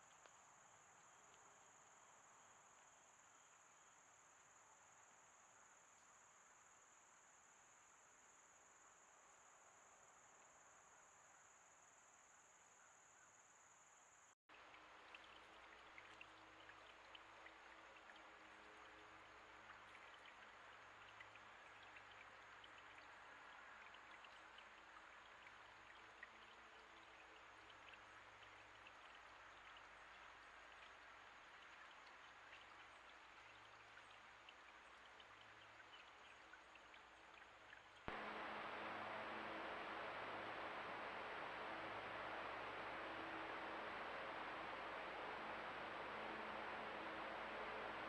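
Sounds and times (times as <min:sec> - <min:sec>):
tiny drip ticks: 0:14.5 - 0:38.2
water trickling: 0:14.5 - 0:48.0
microphone hum and hiss: 0:38.1 - 0:48.0.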